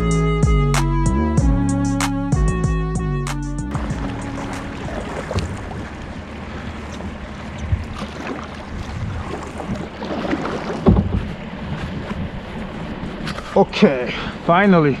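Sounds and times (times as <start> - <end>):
wind: 2.9 - 15.0
water lapping around kayak: 3.7 - 15.0
paddle thump against hull: 3.8 - 6.0, 6.9 - 12.3
light knocks against hull: 3.8 - 6.2, 6.8 - 12.2.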